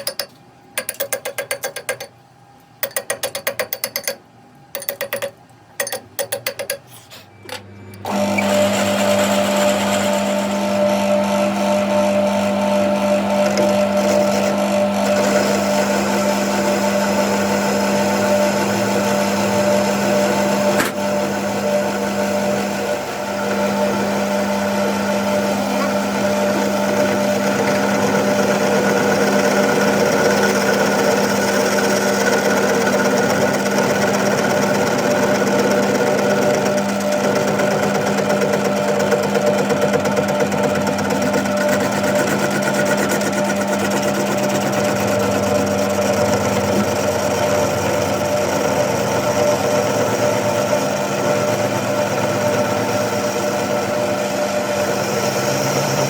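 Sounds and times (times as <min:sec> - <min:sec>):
heavy machinery running: 0:22.6 - 0:56.0.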